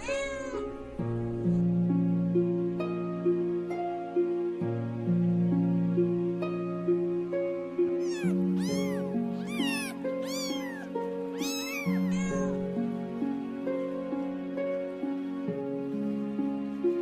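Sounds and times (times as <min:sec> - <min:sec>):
soft background music: 0:00.0 - 0:17.0
kitten meowing: 0:08.0 - 0:12.7.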